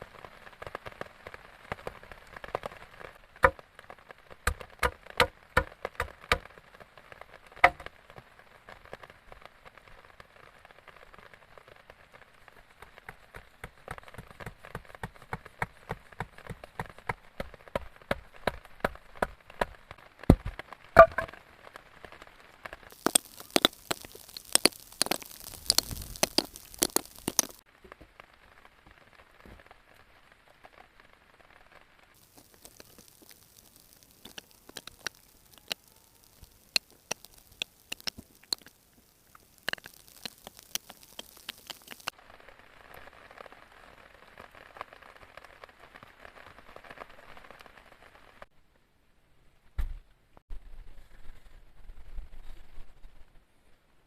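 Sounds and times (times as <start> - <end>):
raindrops tapping on a surface: 0.0 - 30.9, 32.1 - 42.2
faint hiss: 19.9 - 50.4.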